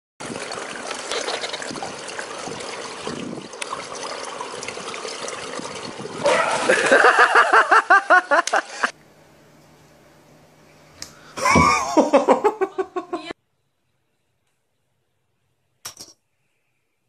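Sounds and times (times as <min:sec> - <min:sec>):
pool water trickling and lapping: 0:00.2 - 0:09.1
loud splash: 0:06.0 - 0:07.7.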